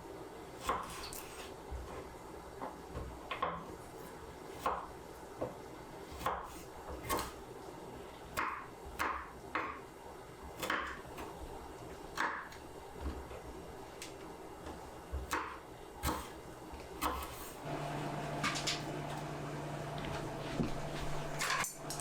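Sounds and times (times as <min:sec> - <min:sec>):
knife chopping on wooden board: 0:06.2 - 0:07.4, 0:08.4 - 0:09.8, 0:10.6 - 0:11.3, 0:15.2 - 0:16.4, 0:17.0 - 0:17.5.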